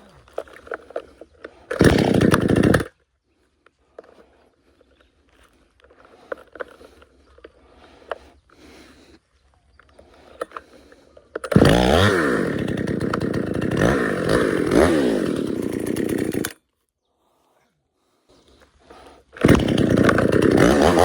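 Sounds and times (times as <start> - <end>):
chainsaw revving: 0.2 - 3.0, 10.3 - 16.6, 18.9 - 21.0.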